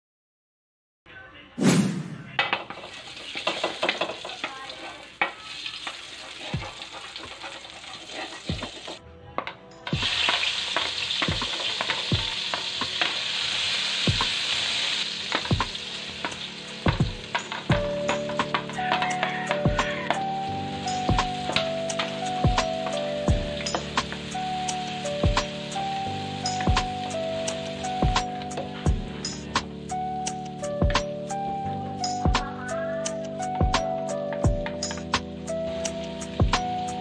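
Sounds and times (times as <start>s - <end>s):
oil sizzling in a wok: 2.5s - 9.0s, 9.8s - 37.0s
wooden spatula knocking in pan: 3.4s - 7.4s, 15.3s - 15.7s, 16.9s - 20.4s.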